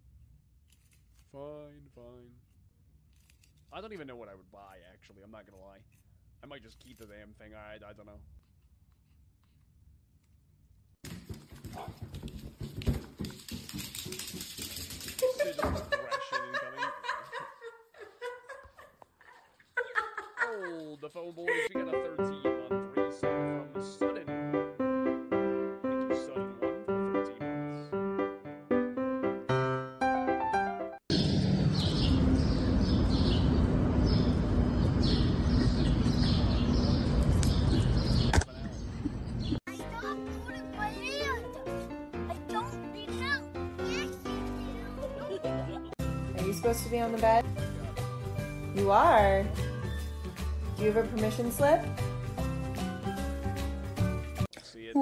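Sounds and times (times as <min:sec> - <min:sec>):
knocks and scuffles: 0:11.0 - 0:14.4
piano music: 0:21.7 - 0:31.1, 0:39.7 - 0:54.5.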